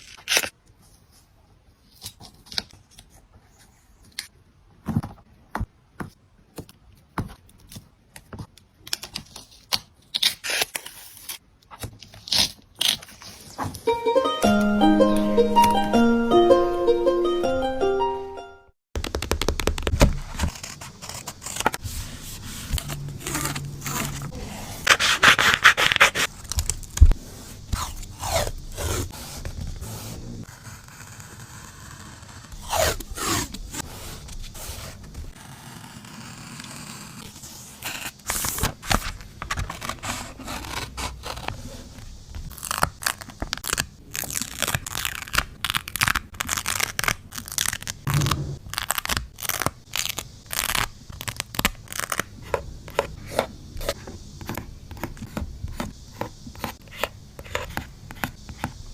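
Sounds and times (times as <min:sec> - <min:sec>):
paper tearing: 0:10.2 - 0:11.4, 0:19.2 - 0:26.9, 0:27.7 - 0:41.9, 0:42.5 - 0:52.3
paper scraping: 0:19.2 - 0:43.2, 0:48.0 - 0:49.7
loud paper rasping: 0:20.3 - 0:26.3.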